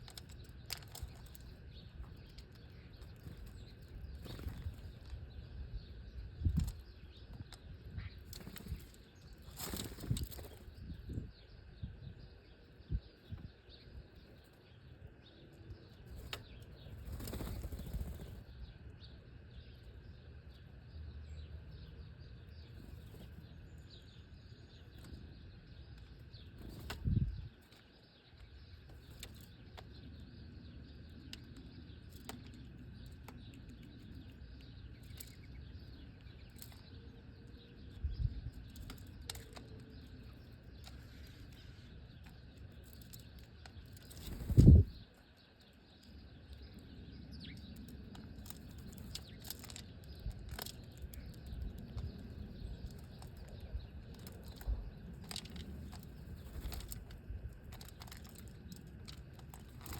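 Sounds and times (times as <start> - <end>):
birds wings flapping: 8.3 - 10.7, 16.2 - 18.4, 44.0 - 45.0, 54.2 - 57.2.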